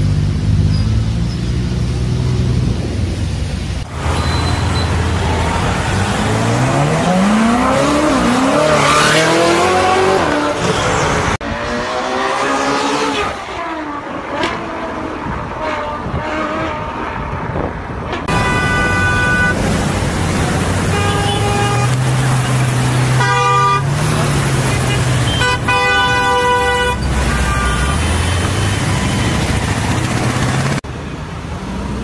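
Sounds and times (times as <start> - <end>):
sports car engines revving: 0.0 - 30.8
car horns tooting: 18.3 - 19.7, 20.8 - 29.8.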